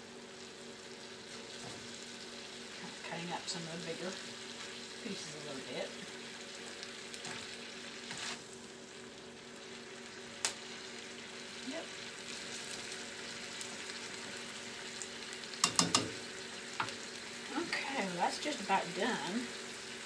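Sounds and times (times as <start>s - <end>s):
chicken sizzling in a skillet: 0.0s - 20.0s
sharp taps on pan: 15.6s - 16.2s
utensils clicking against pan: 15.6s - 16.2s.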